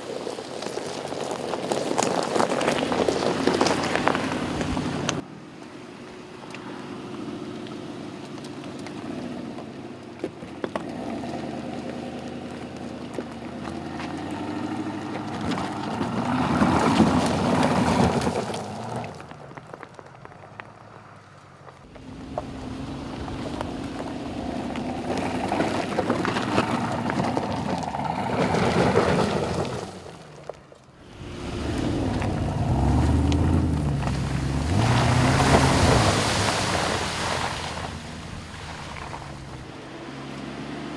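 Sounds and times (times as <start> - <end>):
car engine revving: 2.6 - 5.2, 21.9 - 29.7, 31.0 - 40.9.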